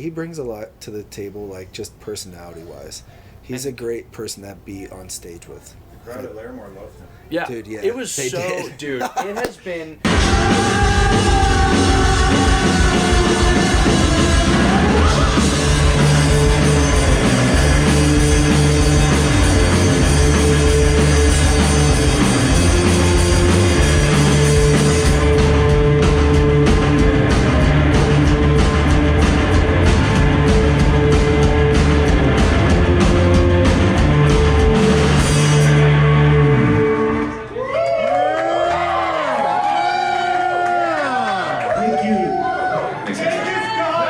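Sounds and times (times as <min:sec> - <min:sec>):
loud rock music: 0:10.1 - 0:37.4.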